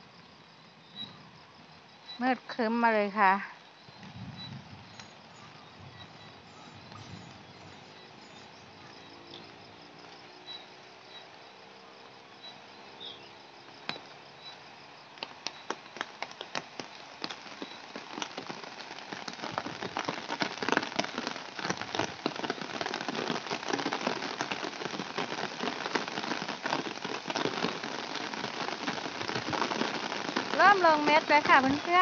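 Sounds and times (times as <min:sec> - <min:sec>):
rain patter: 0:00.0 - 0:32.0.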